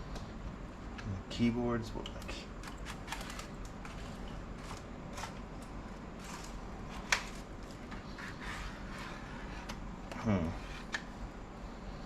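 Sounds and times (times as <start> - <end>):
faint steady hum: 0.0 - 12.0
plastic laptop parts clicking: 2.2 - 5.4.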